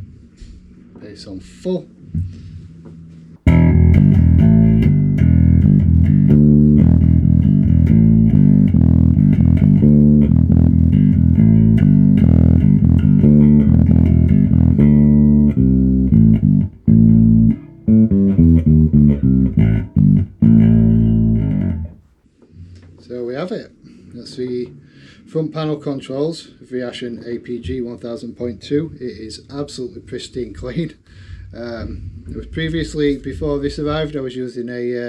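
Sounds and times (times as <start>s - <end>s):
electric bass guitar riffing: 3.4s - 22.0s.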